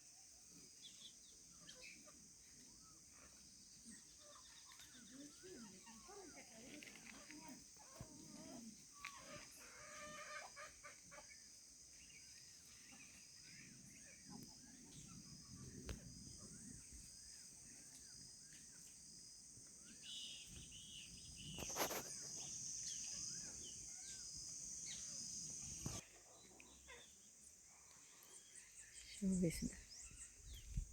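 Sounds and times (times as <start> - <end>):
chickens clucking: 7.2 - 11.5
high insect buzz: 19.9 - 26.0.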